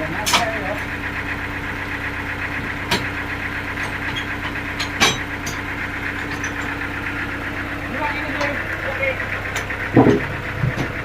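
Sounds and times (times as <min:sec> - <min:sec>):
engine running steadily: 0:00.0 - 0:11.0
sharp knocks: 0:02.8 - 0:03.2, 0:09.5 - 0:11.0.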